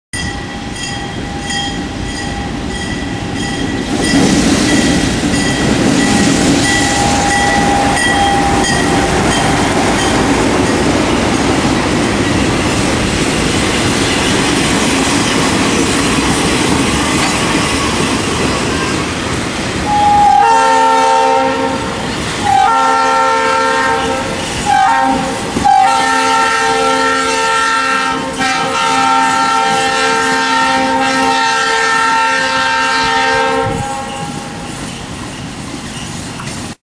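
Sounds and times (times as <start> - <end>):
repeated bell ringing: 0.2 - 11.0
diesel locomotive engine rumble: 0.2 - 36.8
steel wheels clattering over rails: 1.0 - 19.5
train horn blasts: 6.1 - 9.7, 19.8 - 34.6.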